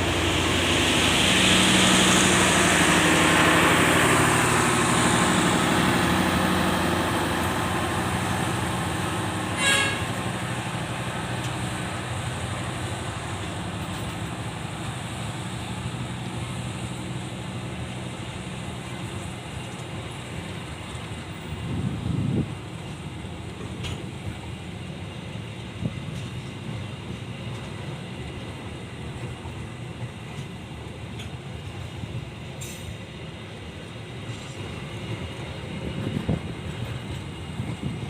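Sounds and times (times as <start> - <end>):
diesel locomotive engine: 0.0 - 38.0
train horn toot: 9.5 - 10.2.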